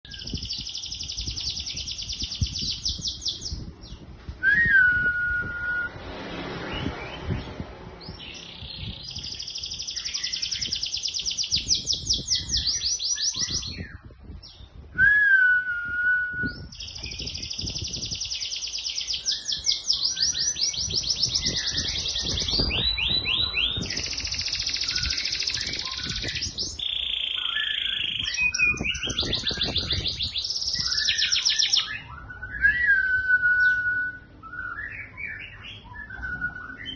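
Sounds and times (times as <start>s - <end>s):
canary singing rolling trills: 0.1s - 4.0s, 6.6s - 14.8s, 16.6s - 32.9s, 33.5s - 36.9s.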